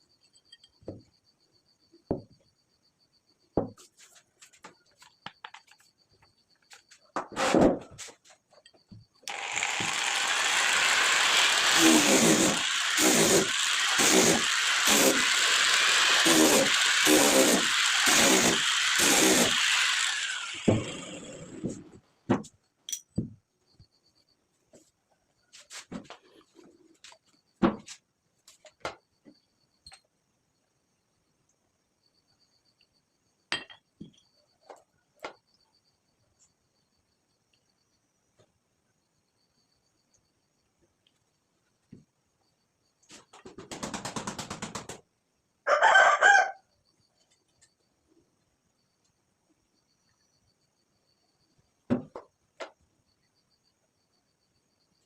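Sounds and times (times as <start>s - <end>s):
power tool hissing and droning: 9.3s - 21.9s.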